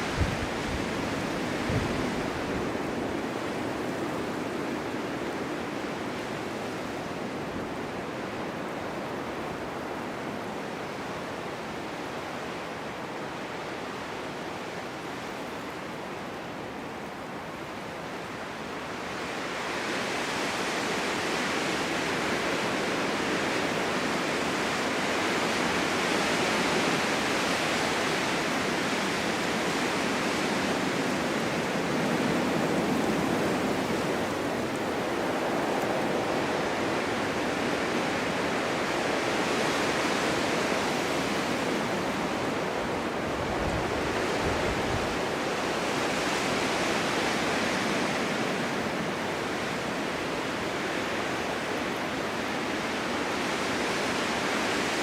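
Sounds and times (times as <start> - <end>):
snowstorm wind gusting: 0.0 - 55.0.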